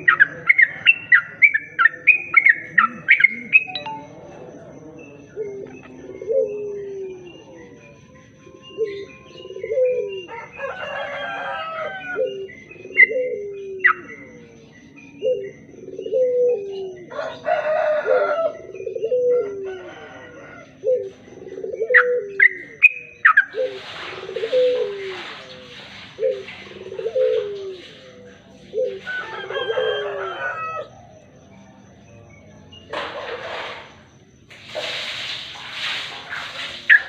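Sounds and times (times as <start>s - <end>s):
bird chattering: 0.0s - 4.2s, 36.3s - 37.0s.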